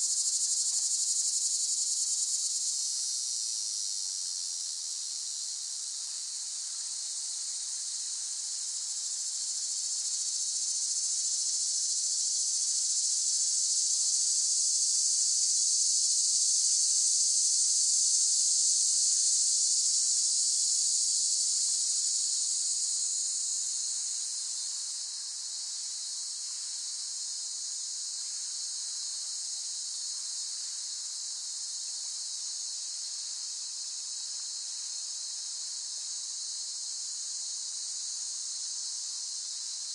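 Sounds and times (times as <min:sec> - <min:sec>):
cicadas buzzing: 0:00.0 - 0:03.9, 0:14.2 - 0:30.8.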